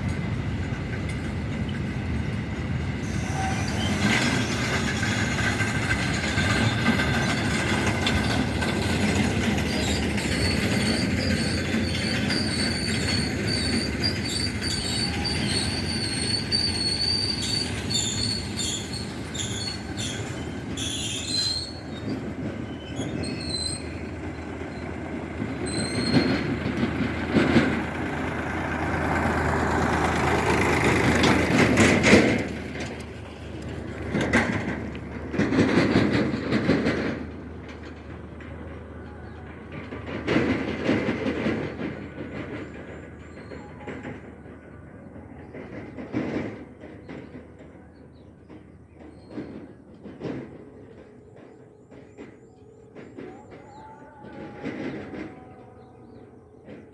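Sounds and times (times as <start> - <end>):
train wheels rumbling on rails: 0.0 - 56.9
high wheel squeal: 2.9 - 32.9.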